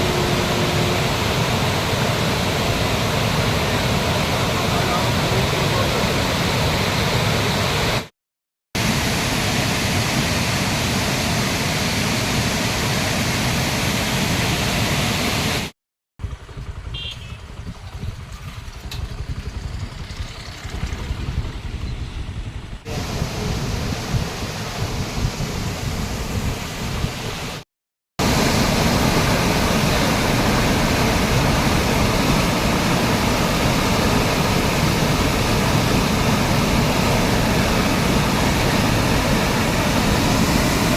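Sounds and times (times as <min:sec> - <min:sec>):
rushing floodwater roaring: 0:00.0 - 0:08.1, 0:08.8 - 0:15.7, 0:22.9 - 0:27.6, 0:28.2 - 0:40.9.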